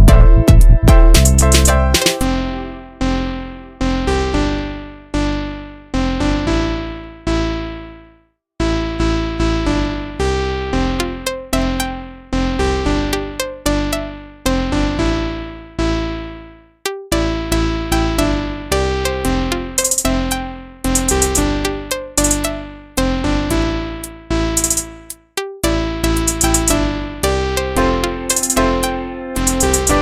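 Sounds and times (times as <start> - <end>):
piano chords: 26.4 - 30.0.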